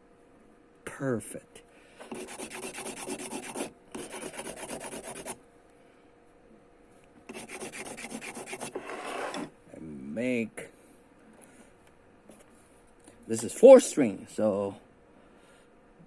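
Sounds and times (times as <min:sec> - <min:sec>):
sanding bamboo rasping: 0:02.1 - 0:05.4, 0:07.3 - 0:08.8.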